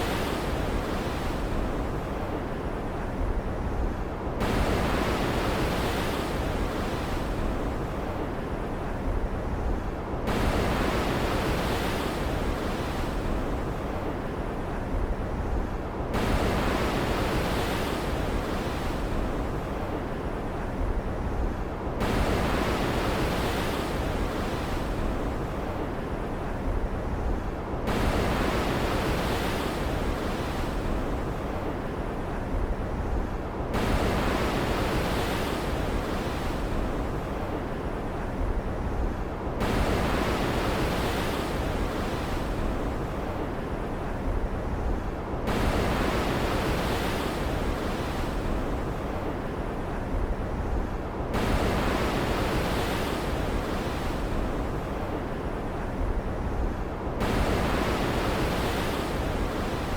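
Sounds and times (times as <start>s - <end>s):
wind: 0.0s - 59.9s
waves breaking: 27.9s - 59.9s.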